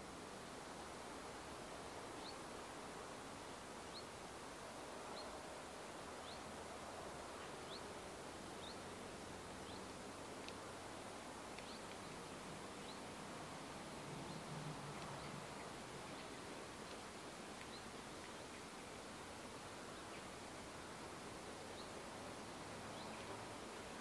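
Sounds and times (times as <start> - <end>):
faint steady hiss: 0.0 - 24.0
small bird chirping: 7.4 - 7.9, 8.6 - 8.8, 9.6 - 9.9, 11.6 - 13.1, 14.2 - 18.8.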